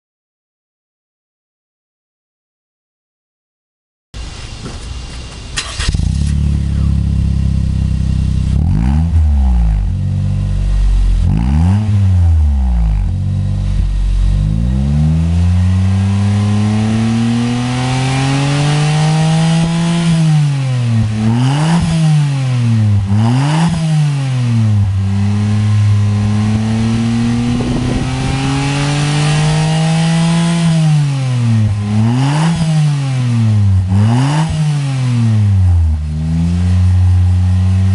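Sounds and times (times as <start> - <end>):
car engine idling and revving: 4.2 - 37.9.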